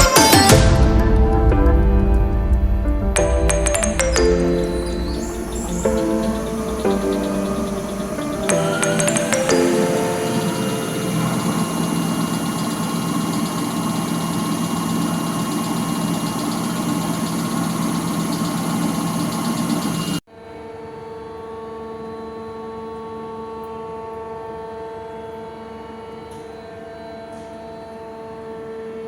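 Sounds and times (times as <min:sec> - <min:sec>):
machine running: 0:01.8 - 0:20.2
electrical hum: 0:03.2 - 0:20.2.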